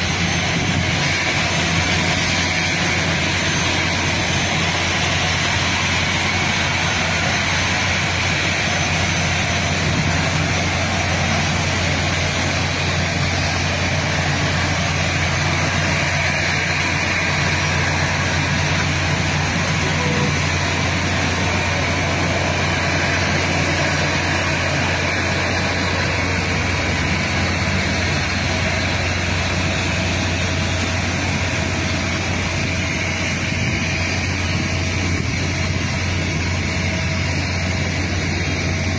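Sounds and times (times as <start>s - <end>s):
even rushing noise: 0.0s - 38.9s
vehicle engine hum: 0.0s - 38.9s.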